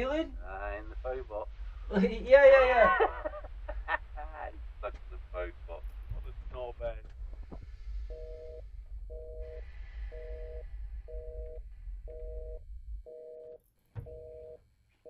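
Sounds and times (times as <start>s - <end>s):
low hum: 0.0s - 15.0s
thump: 13.9s - 14.2s.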